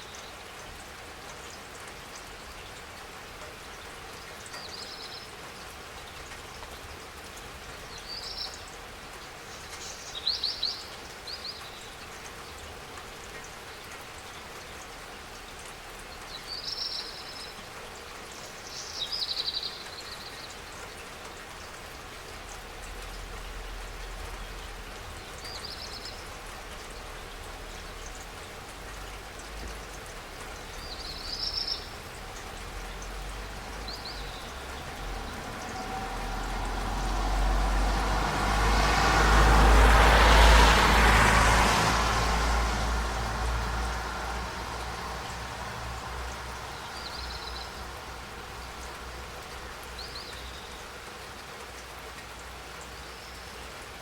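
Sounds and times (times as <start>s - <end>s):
rain falling: 0.0s - 54.0s
bird chirping: 46.3s - 48.2s.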